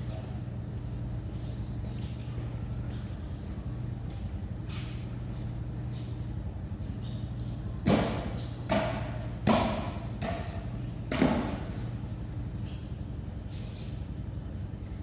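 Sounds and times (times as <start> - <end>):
steady low hum: 0.0 - 15.0
sharp knocks: 7.8 - 11.6.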